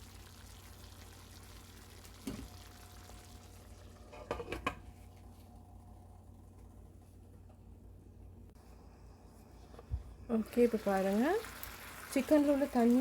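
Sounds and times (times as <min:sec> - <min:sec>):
chicken simmering in pan: 0:00.0 - 0:05.1, 0:10.4 - 0:13.0.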